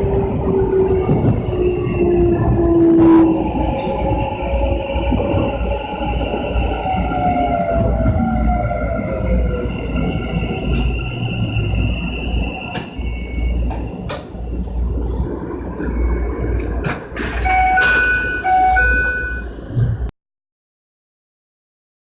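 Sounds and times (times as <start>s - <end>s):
train rumbling: 0.0s - 20.1s
short high beeps: 17.4s - 19.5s.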